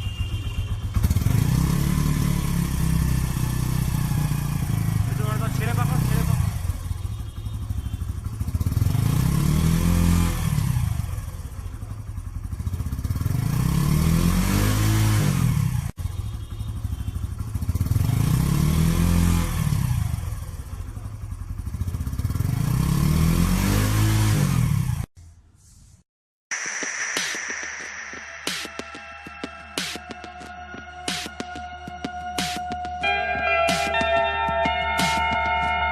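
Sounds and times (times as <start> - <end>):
motorcycle engine revving: 0.0 - 25.1.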